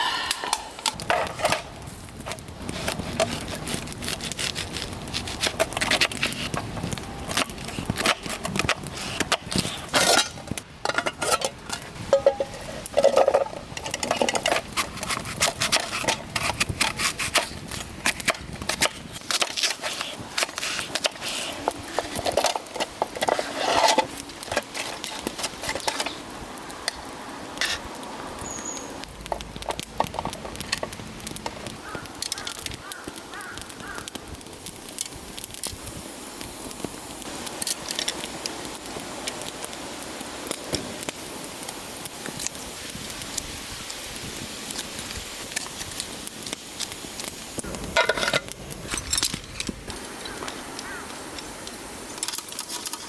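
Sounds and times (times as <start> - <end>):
firewood crackling and popping: 0.0 - 53.0.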